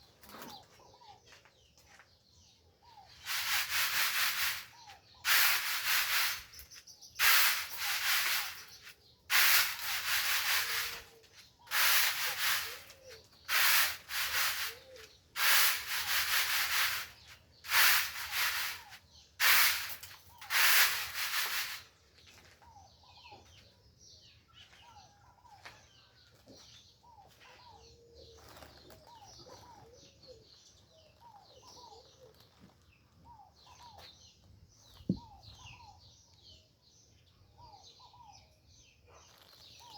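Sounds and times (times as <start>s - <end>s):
birds chirping: 0.0s - 39.9s
scratchy rubbing bursts: 7.2s - 11.1s, 11.7s - 21.8s.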